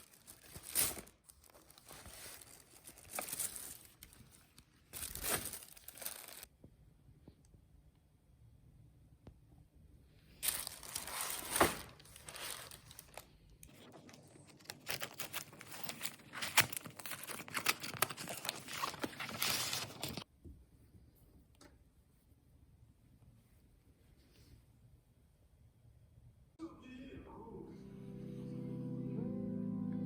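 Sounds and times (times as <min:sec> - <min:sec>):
packaging crinkling and tearing: 0:00.0 - 0:06.5, 0:10.4 - 0:20.3.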